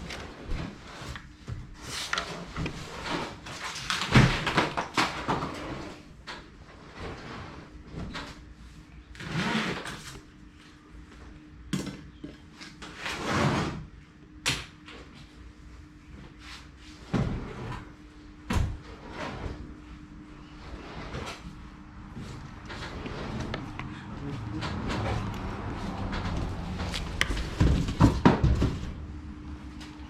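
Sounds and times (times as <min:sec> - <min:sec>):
objects knocking and scraping: 0:21.1 - 0:29.0.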